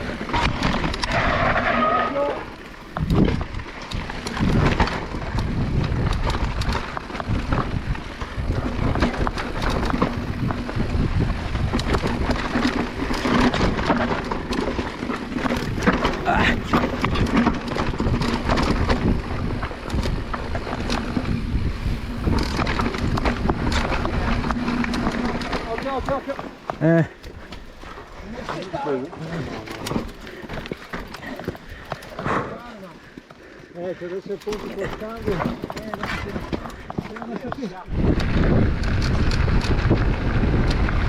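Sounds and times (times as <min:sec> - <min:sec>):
tyres crunching over stones: 0:00.0 - 0:41.0
wind buffeting microphone: 0:02.5 - 0:28.4, 0:34.5 - 0:41.0.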